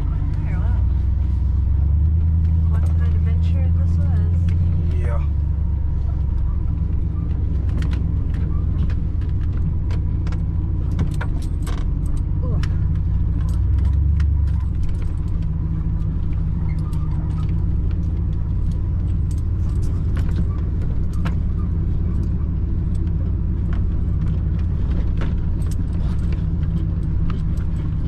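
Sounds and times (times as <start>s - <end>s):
car road and engine rumble: 0.0s - 28.0s
small clicks and rattles: 6.8s - 28.0s.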